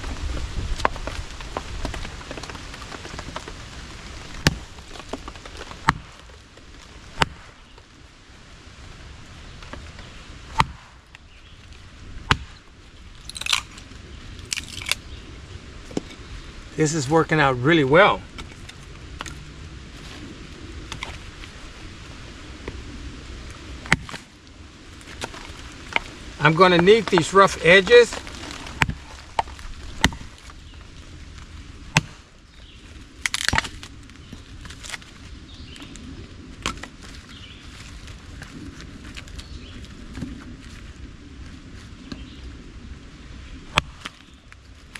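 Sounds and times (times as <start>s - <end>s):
wood splitting: 0.0s - 7.7s, 9.7s - 11.2s, 12.2s - 12.6s, 13.2s - 13.8s, 14.4s - 15.0s, 23.8s - 24.3s, 25.1s - 30.6s, 31.9s - 32.3s, 33.2s - 35.1s
hatchet chopping firewood: 4.4s - 6.4s, 7.1s - 7.6s, 10.4s - 11.1s, 12.2s - 12.6s, 13.2s - 13.7s, 14.5s - 15.0s, 23.8s - 24.2s, 26.7s - 30.4s, 31.9s - 32.2s, 33.2s - 33.8s
hatchet striking wood: 5.8s - 6.2s, 10.5s - 11.0s, 12.3s - 12.6s, 23.9s - 24.2s.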